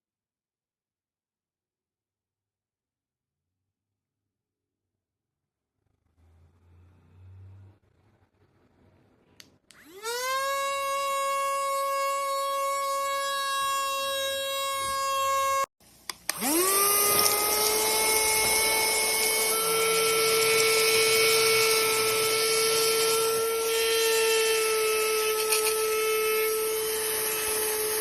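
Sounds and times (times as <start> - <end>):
handheld vacuum cleaner whine: 9.7 - 28.0.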